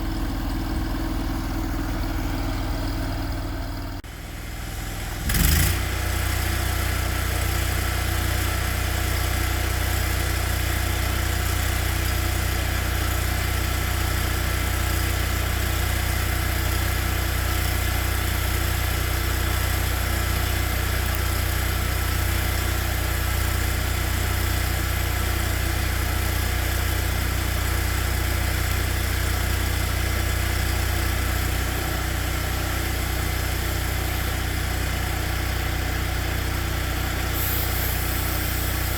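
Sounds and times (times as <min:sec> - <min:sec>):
car engine idling: 0:00.0 - 0:05.1.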